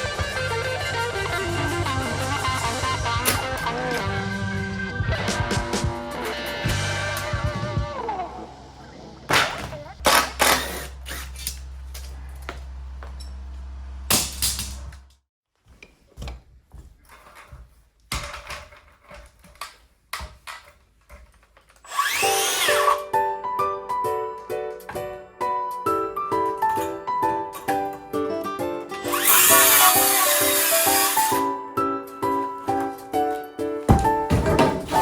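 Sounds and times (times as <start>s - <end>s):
music: 0.0s - 9.9s, 22.3s - 35.0s
knocks and clatter: 33.9s - 35.0s.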